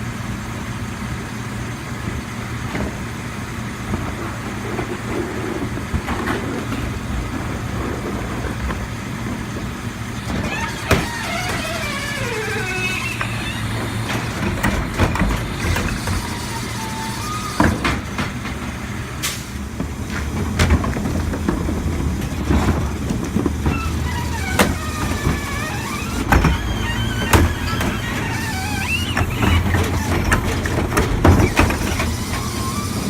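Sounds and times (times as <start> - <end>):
garbage truck engine running: 0.0 - 33.0
sharp clunks and bangs: 6.0 - 19.5
wavering high squeals: 10.2 - 14.1, 15.9 - 17.8, 23.8 - 30.3.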